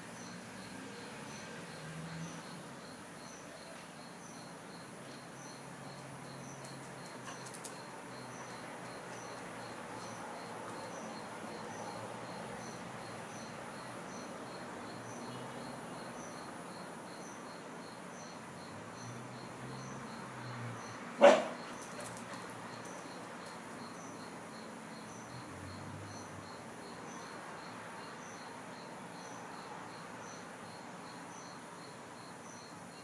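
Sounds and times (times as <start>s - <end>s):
insects chirping: 0.0s - 33.0s
dog barking: 21.2s - 21.6s.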